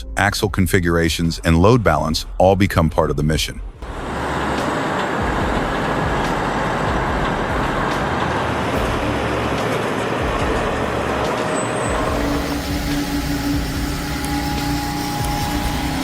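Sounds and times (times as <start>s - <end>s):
road noise: 3.8s - 16.0s
truck diesel engine rumble: 3.8s - 16.0s.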